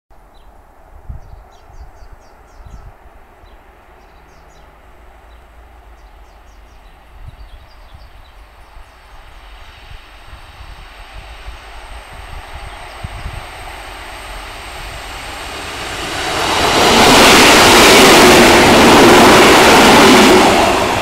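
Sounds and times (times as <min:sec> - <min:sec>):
small birds chirping: 0:01.2 - 0:09.5, 0:12.4 - 0:13.6
electric train approaching: 0:02.3 - 0:21.0.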